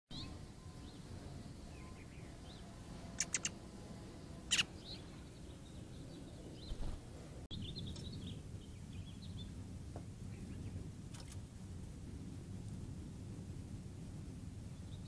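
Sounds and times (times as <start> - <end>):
high bird chirps: 3.2 - 3.6, 4.5 - 6.9
sharp bird ticks: 3.2 - 3.6.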